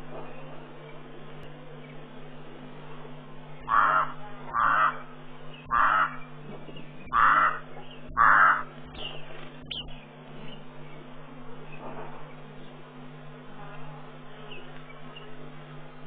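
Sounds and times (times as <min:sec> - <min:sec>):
steady low hum: 0:00.0 - 0:16.0
bird calling coarsely: 0:03.6 - 0:10.0.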